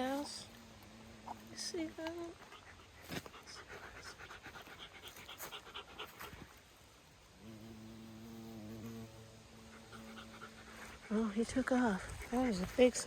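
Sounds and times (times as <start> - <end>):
rapid rhythmic panting: 2.4 - 6.4.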